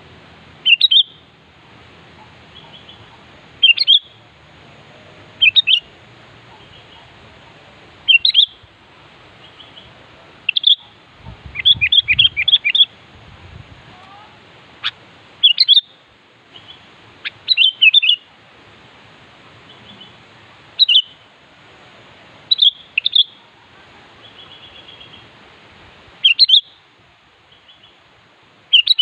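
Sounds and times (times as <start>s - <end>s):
bird singing whistled notes: 0.6s - 1.3s, 2.5s - 4.2s, 5.4s - 5.9s, 8.1s - 8.6s, 10.5s - 10.9s, 11.5s - 12.9s, 14.8s - 16.0s, 16.6s - 18.3s, 20.8s - 21.2s, 22.5s - 23.4s, 26.2s - 26.8s, 28.7s - 29.0s.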